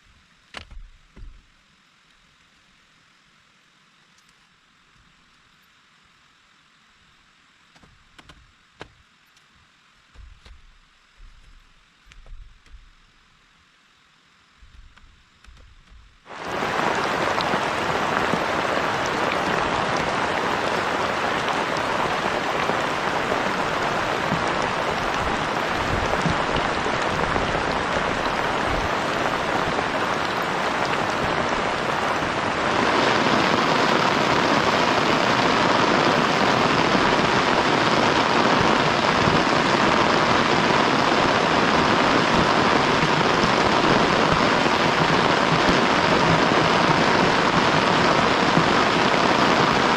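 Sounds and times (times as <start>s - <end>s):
heavy rain falling: 14.6s - 49.9s.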